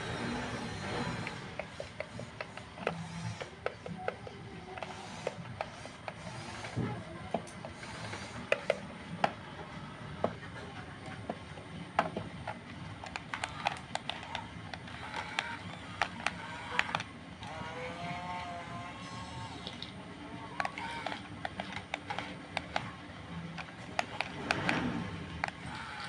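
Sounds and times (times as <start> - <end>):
small electric motors whirring: 0.0 - 9.4, 11.2 - 26.0
sharp clicks and knocks: 0.8 - 9.4, 11.1 - 17.1, 20.6 - 26.0.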